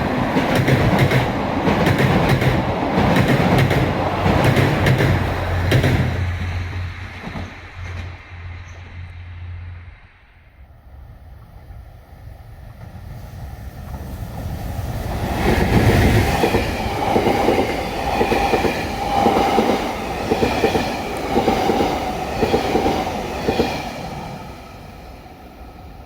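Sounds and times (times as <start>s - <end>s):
train wheels clacking on rail joints: 0.0s - 9.0s, 13.8s - 24.1s
train whine: 0.0s - 26.0s.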